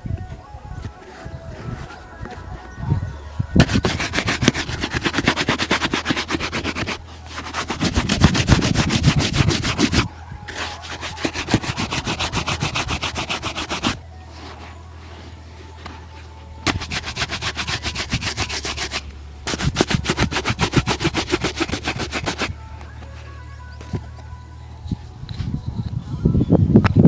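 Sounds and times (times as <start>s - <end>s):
shoe being buffed: 3.6s - 14.8s, 16.6s - 22.6s.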